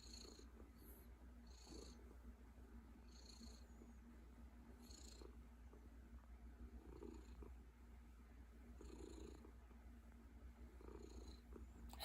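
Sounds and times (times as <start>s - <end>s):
cat purring: 0.0s - 2.3s, 3.0s - 4.1s, 4.7s - 6.0s, 6.6s - 7.8s, 8.5s - 9.8s, 10.6s - 12.0s.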